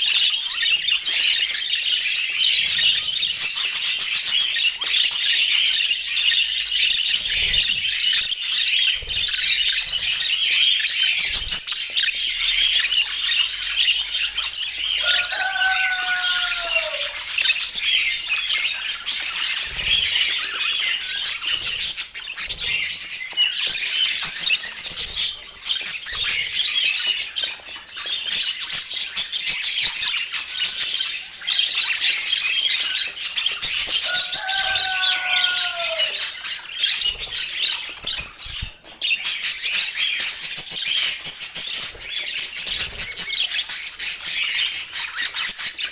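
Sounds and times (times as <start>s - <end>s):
budgerigars chattering: 0.0s - 45.9s
low falling bird calls: 13.6s - 21.4s, 34.0s - 39.1s.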